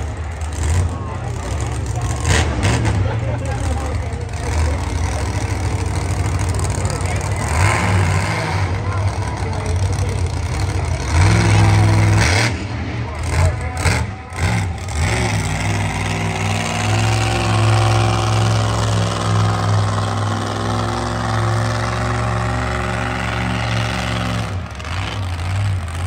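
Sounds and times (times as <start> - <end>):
truck engine running: 0.0 - 26.0.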